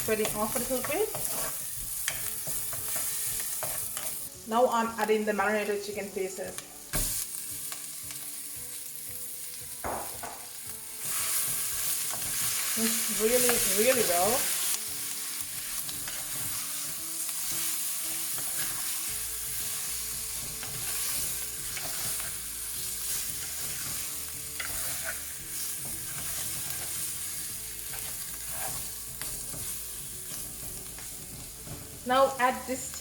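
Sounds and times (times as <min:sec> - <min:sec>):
stirring in a clay pot: 0:00.0 - 0:04.3, 0:27.9 - 0:29.6
chicken sizzling in hot oil: 0:00.0 - 0:33.0.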